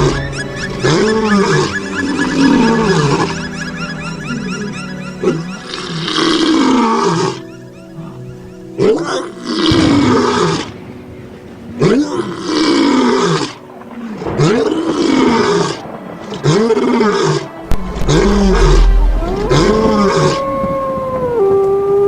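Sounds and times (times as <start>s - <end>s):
large animal roaring: 9.0s - 10.8s, 11.8s - 21.5s
deep rumble: 13.7s - 21.7s
steady held tones: 15.2s - 21.4s.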